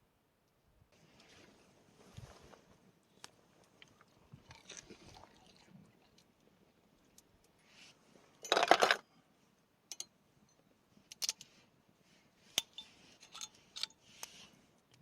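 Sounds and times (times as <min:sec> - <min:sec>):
sharp light clicks and clinks: 0:09.9 - 0:11.5, 0:12.6 - 0:15.0.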